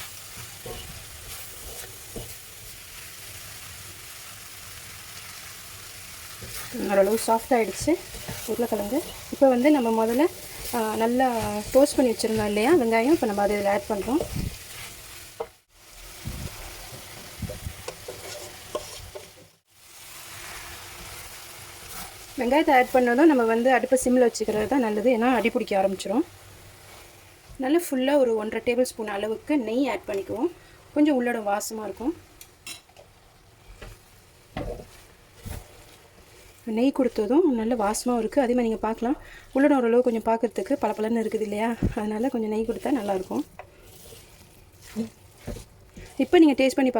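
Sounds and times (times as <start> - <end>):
vegetables sizzling in oil: 0.0 - 46.9
stirring knocks: 6.4 - 14.6, 33.7 - 46.9.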